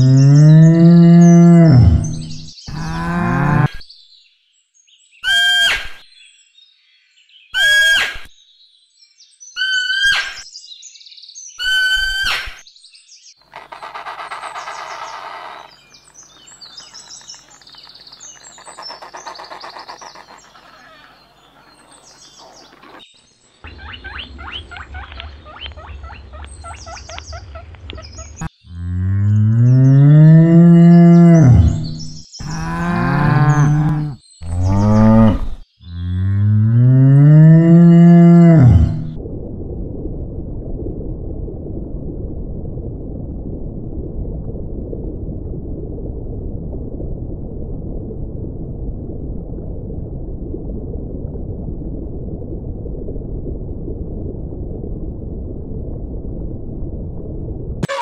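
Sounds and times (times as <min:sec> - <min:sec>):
cow mooing: 0:00.0 - 0:03.7, 0:28.8 - 0:39.1.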